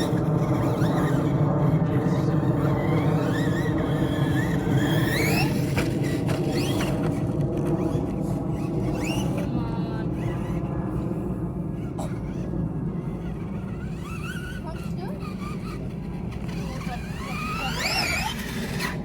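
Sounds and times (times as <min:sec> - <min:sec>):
rc truck electric motor whining: 0:00.0 - 0:19.0.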